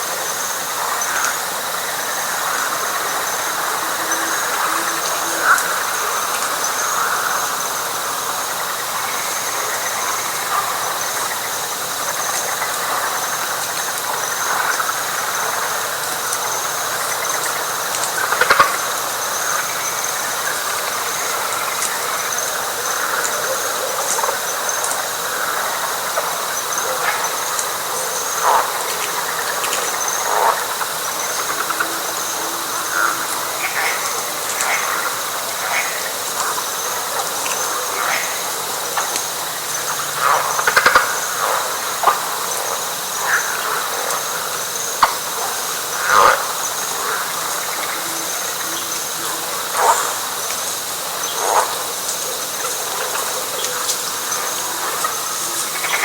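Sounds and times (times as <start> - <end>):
frog chorus: 0.0 - 56.0
high pulsing insect trill: 0.0 - 56.0.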